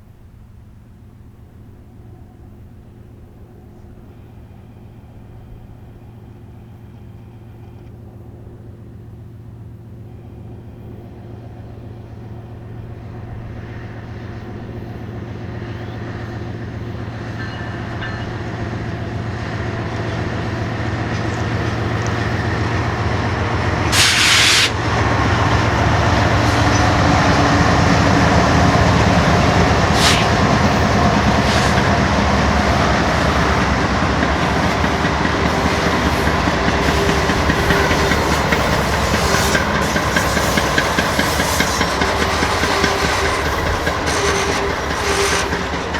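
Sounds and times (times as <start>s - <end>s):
diesel locomotive engine drone: 0.0s - 45.9s
train wheels clattering on rail: 10.8s - 45.9s
short loud hiss: 23.9s - 24.8s, 29.9s - 30.5s.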